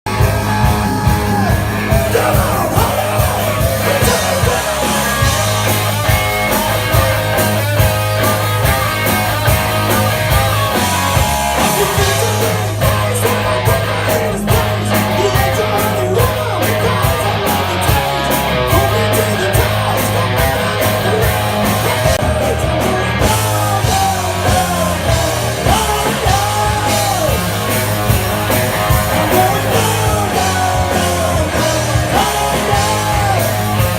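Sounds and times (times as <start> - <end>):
live rock band playing: 0.0 - 33.9
person singing: 0.1 - 27.7, 28.8 - 33.9.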